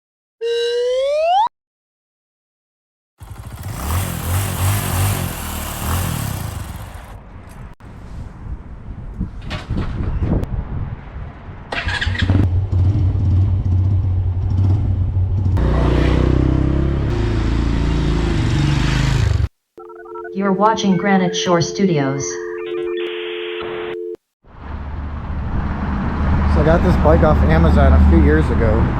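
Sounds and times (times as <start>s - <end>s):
motorcycle engine revving: 3.2s - 7.7s, 12.0s - 19.5s.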